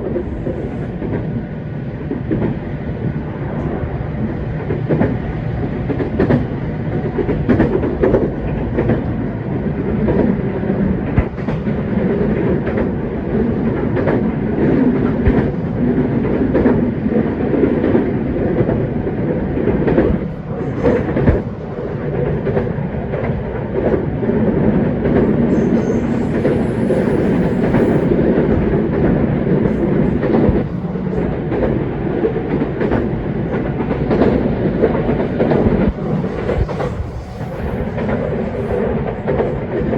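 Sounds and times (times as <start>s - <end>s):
rail joint clicks: 0.0s - 39.9s
train wheels rumbling on rail: 0.0s - 39.9s.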